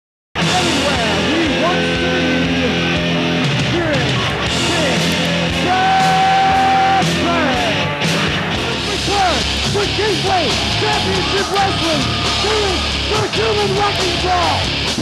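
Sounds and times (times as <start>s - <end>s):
distorted guitar: 0.4s - 15.0s
punk rock music: 0.4s - 15.0s
person singing or yelling: 3.7s - 7.9s, 8.8s - 14.7s.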